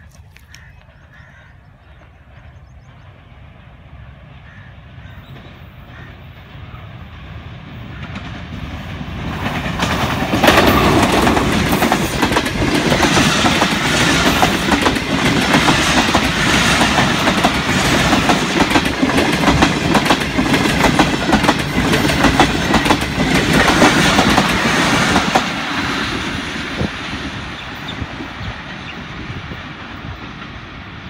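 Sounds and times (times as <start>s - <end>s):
train wheels clattering over rail joints: 7.9s - 25.8s.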